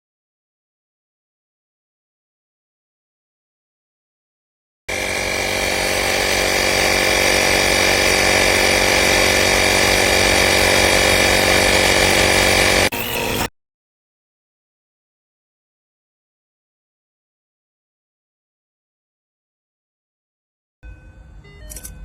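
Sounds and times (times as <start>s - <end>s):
tyre inflator compressor buzzing: 4.9s - 13.5s.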